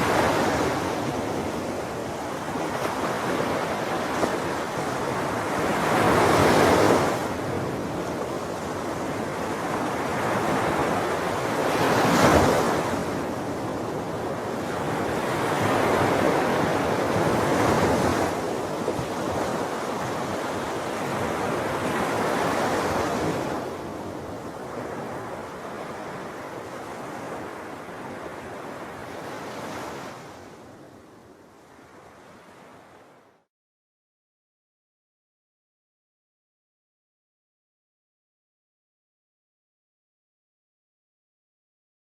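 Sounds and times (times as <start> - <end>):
sea waves breaking on shore: 0.0 - 33.5.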